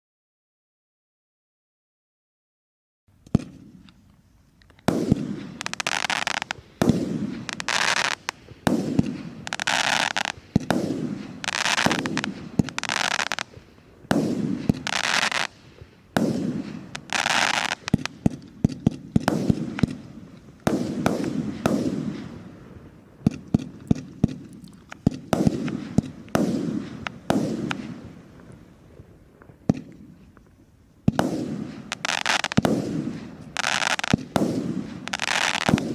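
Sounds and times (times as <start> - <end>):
hissing crackling firework bursts: 3.3 - 35.9.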